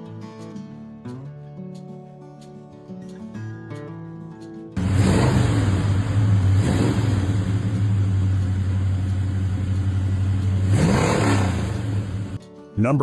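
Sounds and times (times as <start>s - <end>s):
car engine idling and revving: 4.8s - 12.4s.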